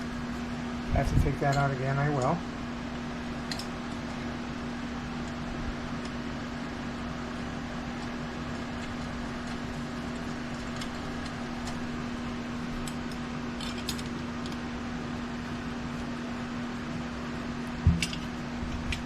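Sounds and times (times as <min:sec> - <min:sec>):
steady background hum: 0:00.0 - 0:19.0
small metal parts clicking: 0:12.8 - 0:14.6.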